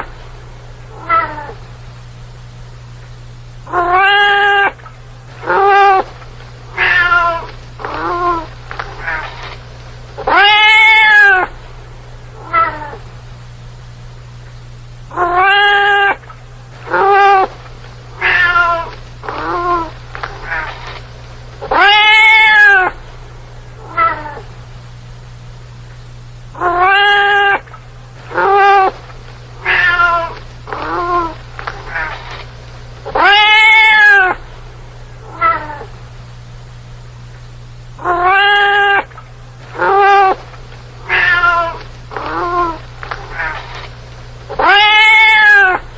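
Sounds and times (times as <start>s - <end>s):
steady low hum: 0.0s - 45.9s
cat meowing: 0.9s - 1.6s, 3.7s - 4.8s, 5.4s - 6.1s, 6.8s - 9.6s, 10.2s - 11.5s, 12.4s - 13.0s, 15.1s - 16.2s, 16.9s - 17.5s, 18.2s - 20.9s, 21.6s - 23.0s, 23.8s - 24.4s, 26.6s - 27.7s, 28.3s - 29.0s, 29.6s - 32.4s, 33.1s - 34.4s, 35.2s - 35.9s, 38.0s - 39.1s, 39.8s - 40.4s, 41.1s - 43.8s, 44.5s - 45.9s.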